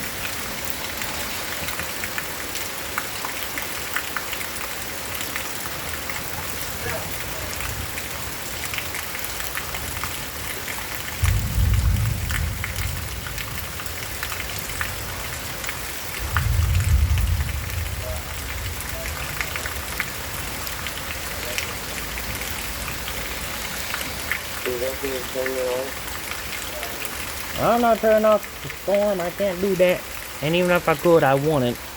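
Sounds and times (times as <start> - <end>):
rain falling: 0.0 - 31.9
low rumbles: 16.2 - 20.9.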